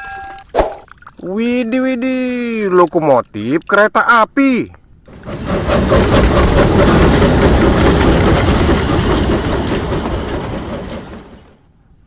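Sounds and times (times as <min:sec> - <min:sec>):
train wheels clattering on rails: 0:05.1 - 0:11.6.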